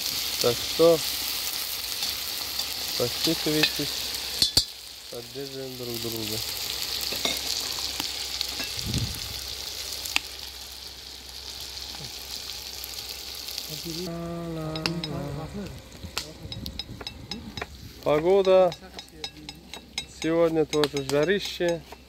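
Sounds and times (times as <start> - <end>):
food sizzling in hot oil: 0.0 - 22.0
man's voice: 13.7 - 16.5.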